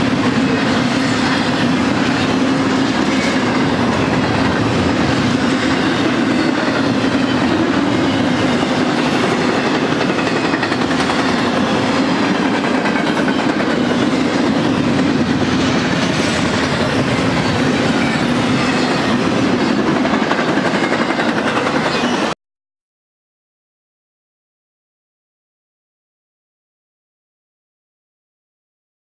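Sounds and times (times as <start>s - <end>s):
steel wheels rolling on rail: 0.0s - 22.3s.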